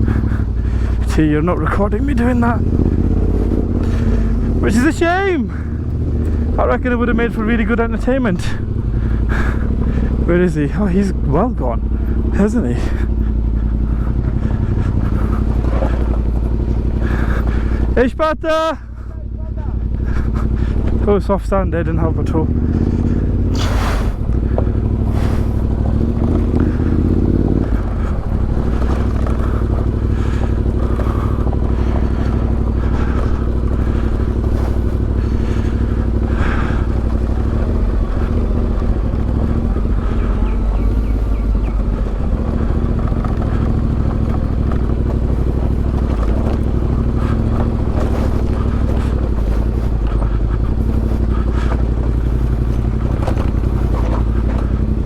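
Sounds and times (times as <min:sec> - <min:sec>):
motorcycle engine at low revs: 0:00.0 - 0:55.0
knocks and rattles: 0:13.8 - 0:18.0, 0:25.7 - 0:55.0.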